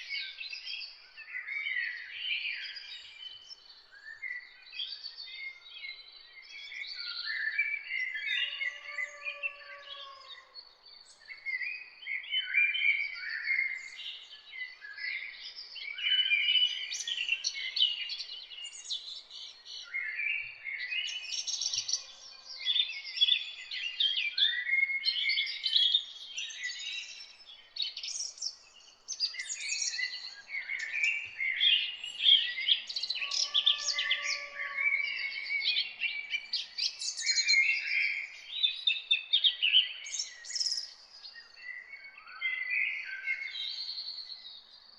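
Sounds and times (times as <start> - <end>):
songbirds chirping: 0.0 - 44.9
lower whistled bird call: 29.2 - 44.4.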